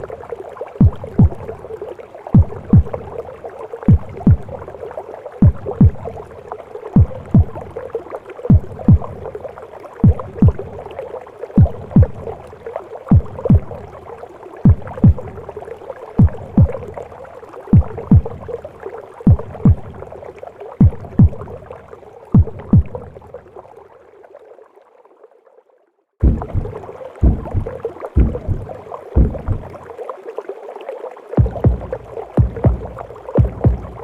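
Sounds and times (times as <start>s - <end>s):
muffled heartbeat thumps: 0.8s - 1.5s, 2.4s - 3.1s, 3.9s - 4.6s, 5.4s - 6.3s, 7.0s - 7.8s, 8.5s - 9.3s, 10.0s - 10.8s, 11.6s - 12.4s, 13.1s - 13.9s, 14.6s - 15.4s, 16.2s - 16.9s, 17.7s - 18.5s, 19.3s - 20.0s, 20.8s - 21.6s, 22.4s - 23.1s, 26.2s - 29.8s, 31.4s - 34.0s
whooshing womb noise: 26.2s - 29.8s.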